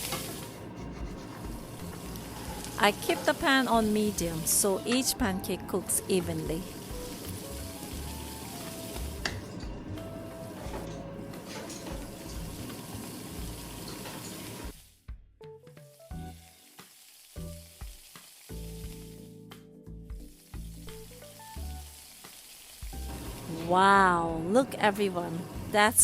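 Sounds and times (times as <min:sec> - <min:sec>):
pancakes sizzling in a pan: 0:00.0 - 0:00.7, 0:06.6 - 0:09.8, 0:11.5 - 0:14.8, 0:16.0 - 0:19.3, 0:20.4 - 0:23.8
background music: 0:00.0 - 0:26.0.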